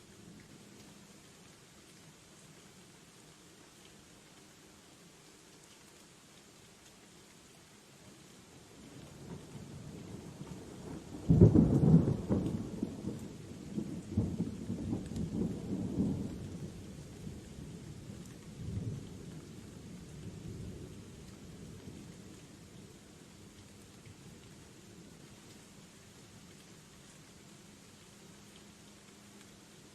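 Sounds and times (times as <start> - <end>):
steady rain: 0.0 - 29.9
thunder crack and rumble: 11.0 - 16.6.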